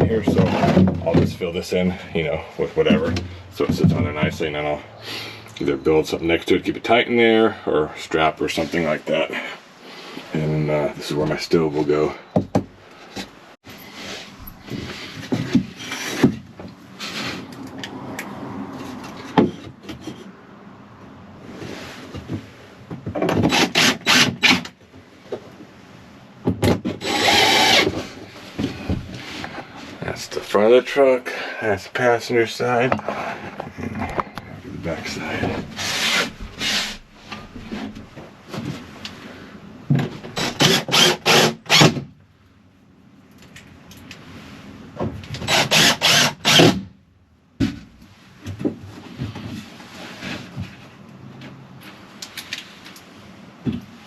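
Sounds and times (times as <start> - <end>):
wood scraping against wood: 0.0 - 5.4, 12.9 - 18.0, 27.2 - 30.7, 32.8 - 39.5, 48.9 - 50.9
scraping strokes on wood: 35.0 - 38.0.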